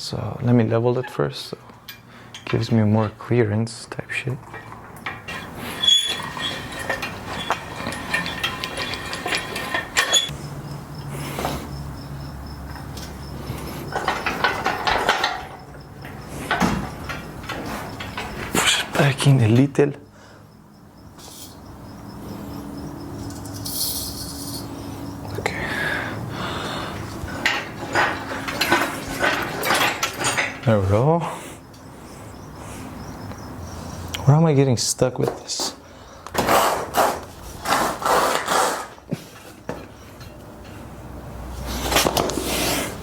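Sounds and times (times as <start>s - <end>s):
low rumbling and scraping: 4.1s - 19.8s
metallic clicking and clinking: 4.4s - 10.8s, 12.7s - 19.6s, 26.9s - 30.8s.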